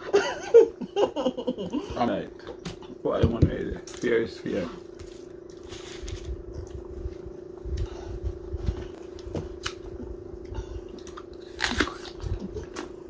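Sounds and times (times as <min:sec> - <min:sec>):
steady hum: 0:00.0 - 0:13.0
crunching bites of fruit: 0:09.0 - 0:13.0.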